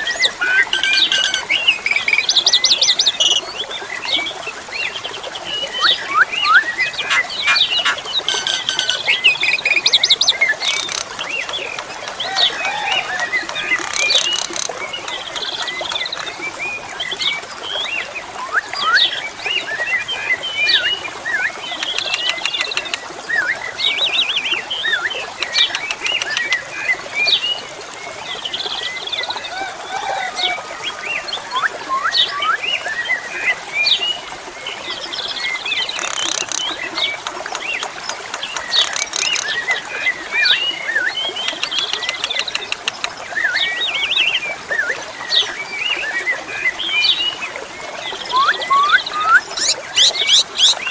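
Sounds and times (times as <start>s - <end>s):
starlings singing: 0.0s - 3.6s, 4.9s - 16.8s, 48.1s - 50.9s
water trickling: 0.0s - 50.9s.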